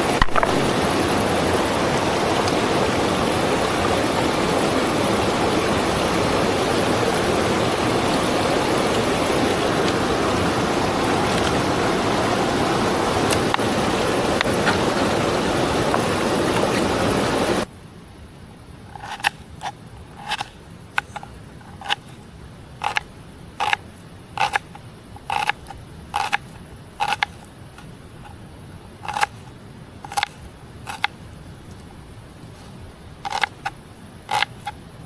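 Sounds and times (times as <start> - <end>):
rushing river water: 0.0 - 17.7.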